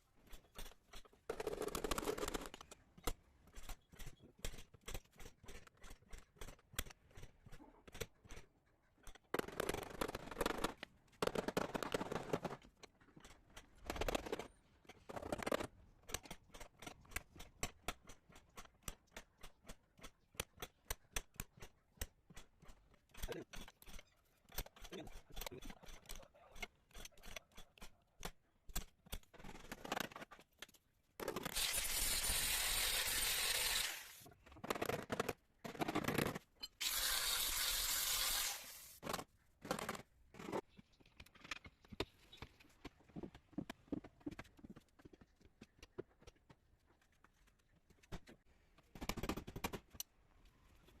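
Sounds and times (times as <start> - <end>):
clicks knocks and scrapes: 34.4 - 36.8, 39.0 - 50.0.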